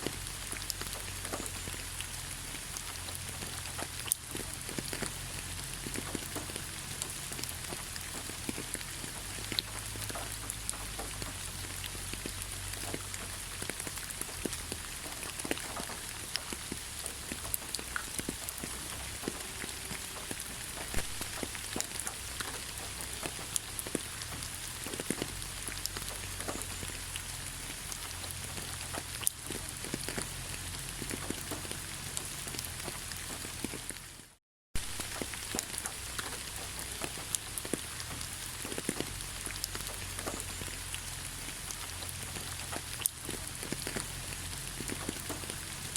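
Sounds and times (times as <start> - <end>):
rain drops striking a surface: 0.0 - 45.9.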